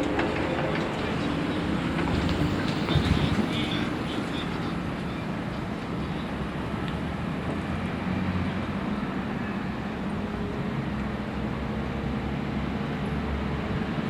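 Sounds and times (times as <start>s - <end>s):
fire truck diesel engine rumbling: 0.0s - 6.7s.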